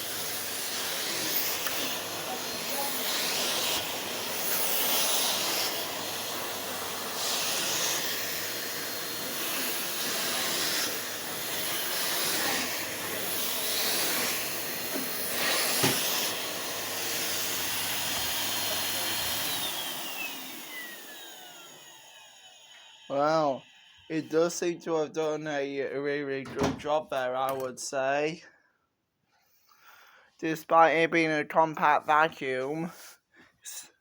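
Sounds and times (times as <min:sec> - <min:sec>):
vacuum cleaner on carpet: 0:00.0 - 0:25.1.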